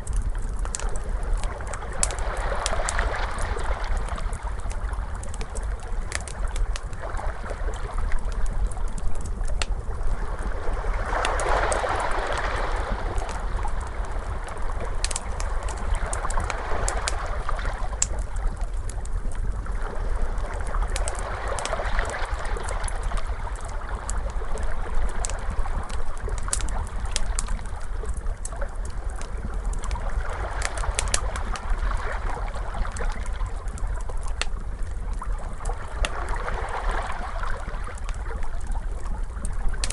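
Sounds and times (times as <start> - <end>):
wood fire crackling: 0.0 - 39.9
ocean waves washing: 10.2 - 18.1.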